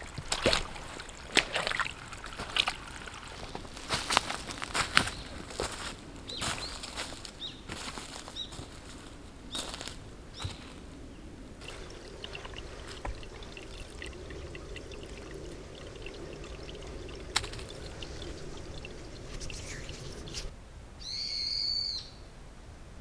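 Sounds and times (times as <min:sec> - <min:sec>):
liquid pouring: 0:00.0 - 0:04.9, 0:11.6 - 0:20.5.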